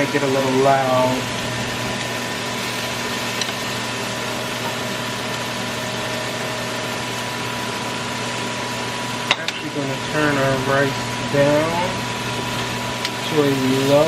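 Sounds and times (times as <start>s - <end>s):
exhaust fan running: 0.0s - 14.0s.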